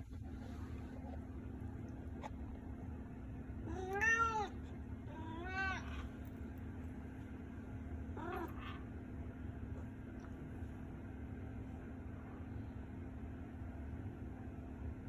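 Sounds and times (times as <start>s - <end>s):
steady low hum: 0.0s - 15.0s
cat meowing: 3.6s - 6.1s, 8.2s - 8.8s.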